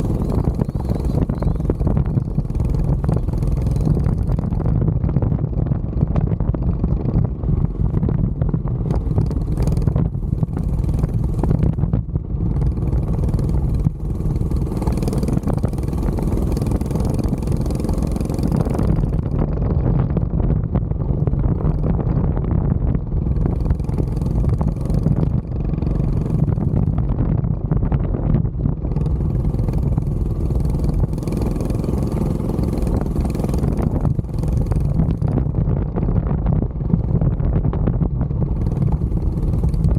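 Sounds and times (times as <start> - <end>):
small motorbike engine running: 0.0 - 20.3, 23.1 - 39.9
wind buffeting microphone: 0.0 - 39.9.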